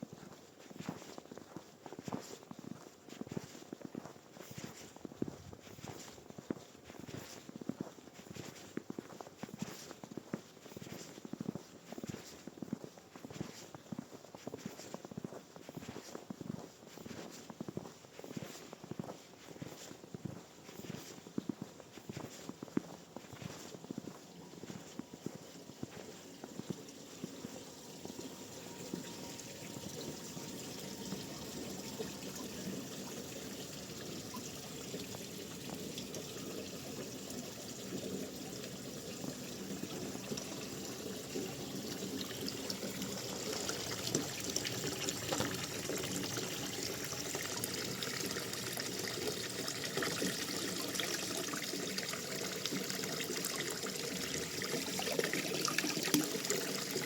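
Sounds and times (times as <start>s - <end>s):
water trickling: 23.4s - 57.0s.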